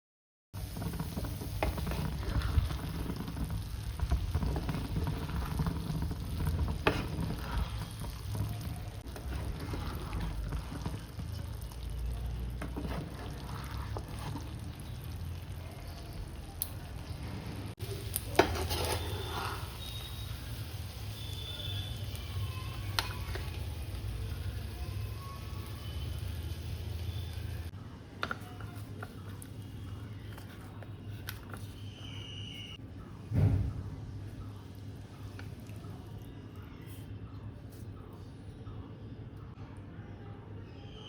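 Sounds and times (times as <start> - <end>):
frying and stirring in a pan: 0.6 - 32.8.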